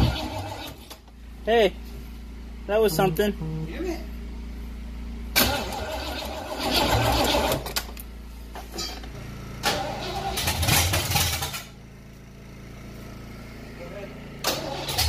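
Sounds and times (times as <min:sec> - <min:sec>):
vehicle engine starting: 0:00.0 - 0:01.2, 0:05.2 - 0:11.8, 0:12.9 - 0:15.0
low steady engine hum: 0:00.0 - 0:15.0.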